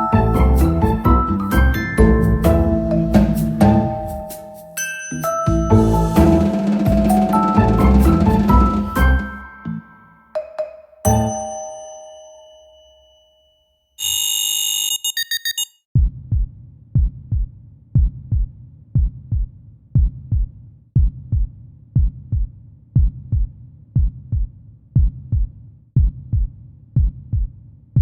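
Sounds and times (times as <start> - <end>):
electronic alarm beep: 14.0 - 15.8
heartbeat thumps: 16.0 - 28.0.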